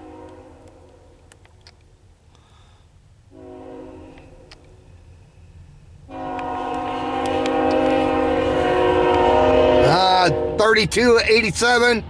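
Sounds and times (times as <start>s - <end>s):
locomotive air horn blasts: 0.0s - 1.2s, 3.3s - 4.6s, 6.1s - 10.9s.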